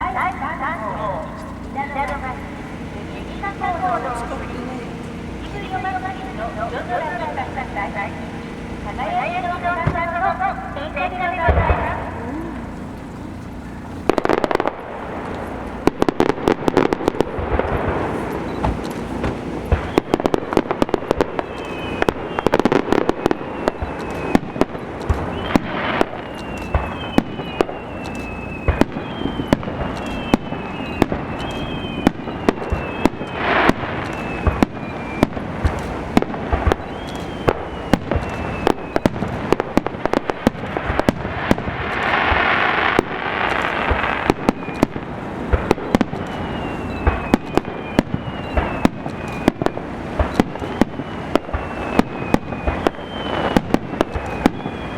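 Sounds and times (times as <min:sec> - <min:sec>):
firework hissing: 0:00.0 - 0:54.9
firework shells bursting: 0:00.0 - 0:54.9
falling firework whistles: 0:11.6 - 0:54.9.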